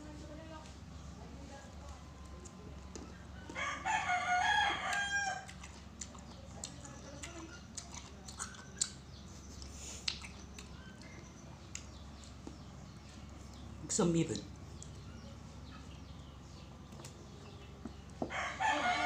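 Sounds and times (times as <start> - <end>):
rooster crowing: 3.4 - 5.5, 18.2 - 19.0.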